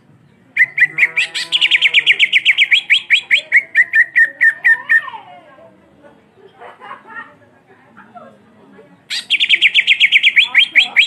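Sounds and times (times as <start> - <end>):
bird singing fast trill: 0.6 - 4.8, 9.1 - 11.0.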